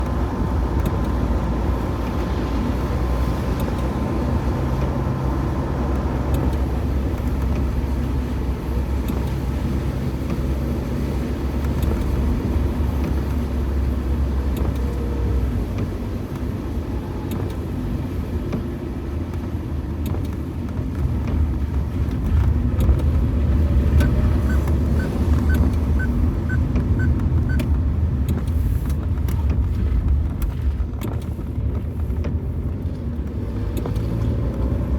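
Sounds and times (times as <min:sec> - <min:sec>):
car driving on wet road: 0:00.0 - 0:34.9.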